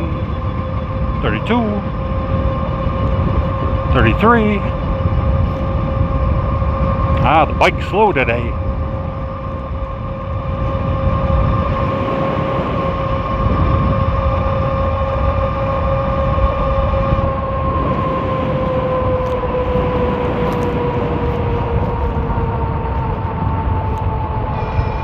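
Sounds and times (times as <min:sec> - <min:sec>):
electric bike motor whine: 0:00.0 - 0:07.4, 0:08.5 - 0:25.0
wind on microphone: 0:00.0 - 0:25.0.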